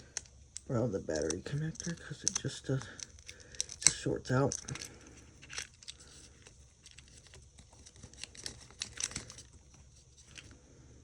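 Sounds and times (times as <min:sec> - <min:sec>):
small tools clicking and scraping: 0:00.0 - 0:10.6.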